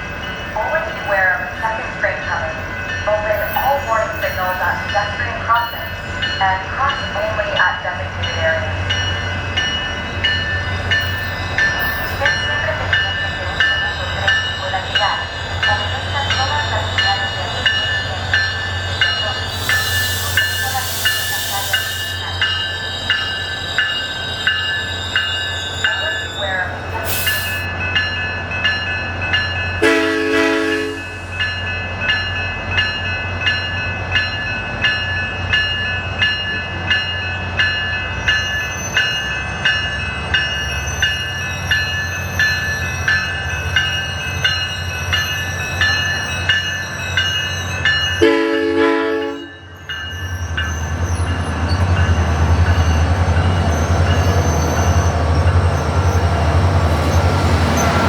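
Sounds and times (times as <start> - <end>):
diesel locomotive engine rumbling: 0.0 - 58.0
train bell ringing: 0.0 - 58.0
train horn short blasts: 29.8 - 31.2, 48.2 - 49.6.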